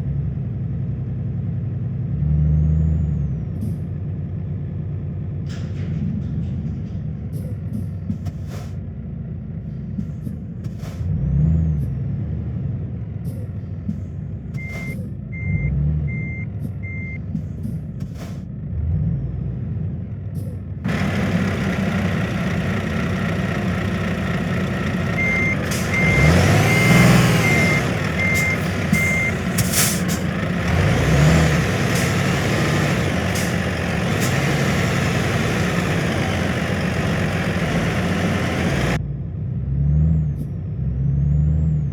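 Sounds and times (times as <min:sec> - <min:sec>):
engine rumble: 0:00.0 - 0:41.9
short sharp hisses: 0:08.4 - 0:08.8, 0:29.6 - 0:30.3
truck reversing alarm beeping: 0:14.6 - 0:17.2, 0:20.9 - 0:39.0.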